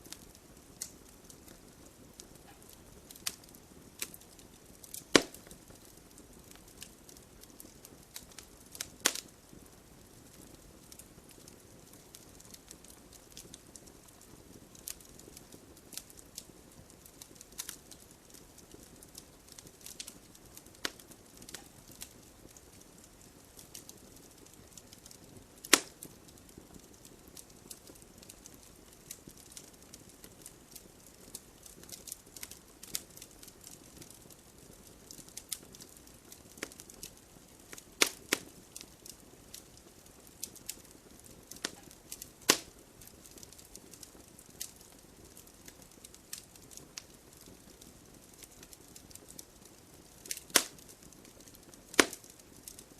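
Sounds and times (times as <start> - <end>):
logs crackling in fireplace: 0.0 - 52.9
loud sharp pops: 5.1 - 5.5, 25.7 - 26.0, 38.0 - 38.4, 42.5 - 42.7, 50.4 - 50.8, 51.9 - 52.3.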